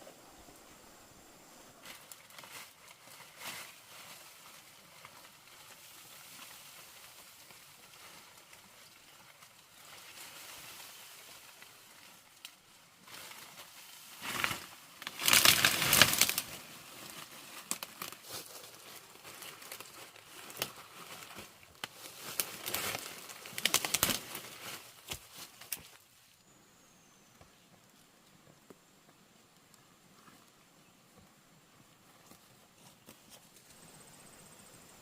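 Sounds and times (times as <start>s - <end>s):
crackles and clicks: 11.2s - 26.5s
crinkling and rustling: 11.6s - 26.1s.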